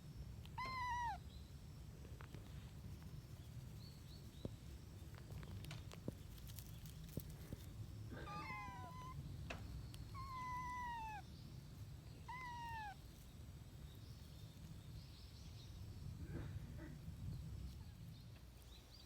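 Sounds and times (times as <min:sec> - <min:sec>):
kitten meowing: 0:00.5 - 0:01.2, 0:08.2 - 0:09.2, 0:10.1 - 0:11.2, 0:12.2 - 0:13.0.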